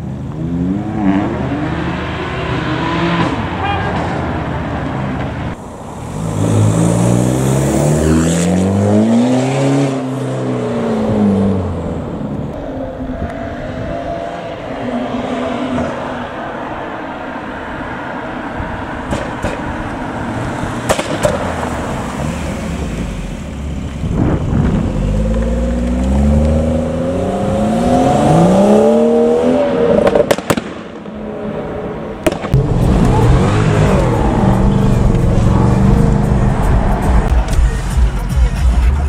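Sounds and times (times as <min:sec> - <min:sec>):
car engine accelerating hard: 0:00.3 - 0:12.6, 0:20.0 - 0:30.3, 0:32.6 - 0:37.6
sharp cracks: 0:20.8 - 0:21.5, 0:30.0 - 0:31.2, 0:32.2 - 0:34.2.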